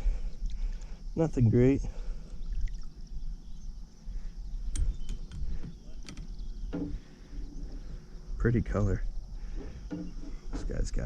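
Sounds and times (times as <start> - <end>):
insects chirping: 0.0 - 11.0
sharp clicks and knocks: 4.7 - 7.0.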